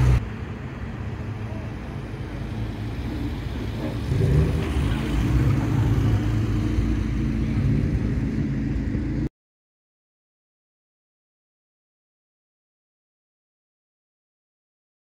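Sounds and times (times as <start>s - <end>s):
car engine and exhaust passing: 0.0s - 9.3s.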